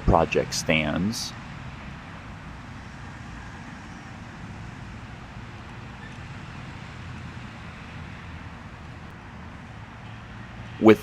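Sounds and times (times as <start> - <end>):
vehicle road noise rumble: 0.0 - 11.0.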